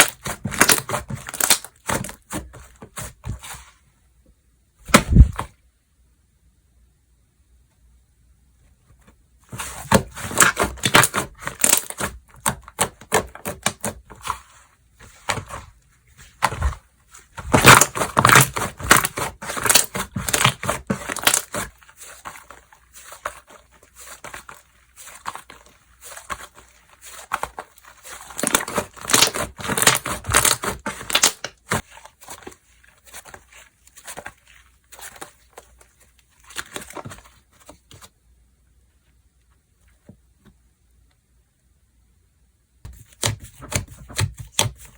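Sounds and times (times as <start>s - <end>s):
slime crackling and popping: 0.0s - 2.2s, 17.4s - 22.2s, 23.0s - 32.5s.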